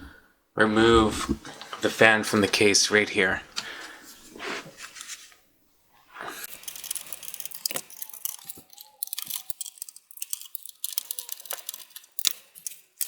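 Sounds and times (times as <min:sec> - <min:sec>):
plastic clicks and scraping: 0:06.4 - 0:13.0.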